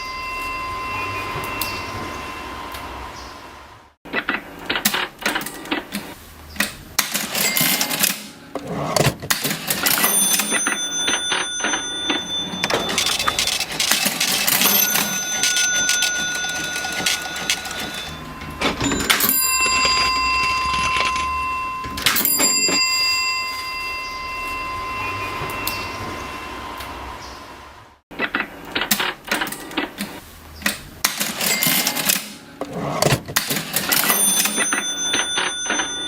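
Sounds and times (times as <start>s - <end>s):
cash register bell ringing: 0.0s - 3.3s, 7.0s - 27.4s, 31.0s - 36.0s
cash register keys clicking: 6.7s - 23.3s, 30.7s - 36.0s.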